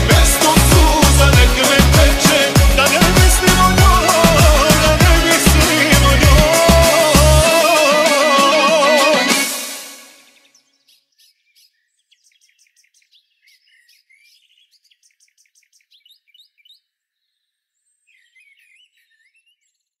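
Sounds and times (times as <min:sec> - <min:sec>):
faint songbirds singing: 0:10.3 - 0:20.0.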